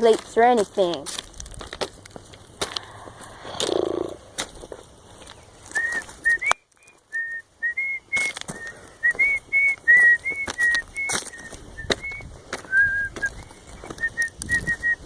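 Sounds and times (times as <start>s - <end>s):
footsteps on gravel: 0.0s - 7.0s, 8.1s - 14.9s
person whistling a tune: 5.7s - 15.0s.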